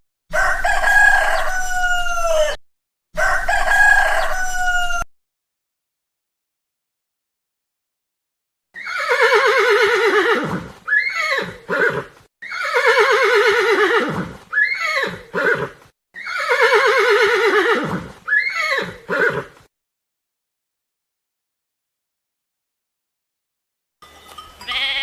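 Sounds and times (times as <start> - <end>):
horse whinnying: 8.7 - 19.7.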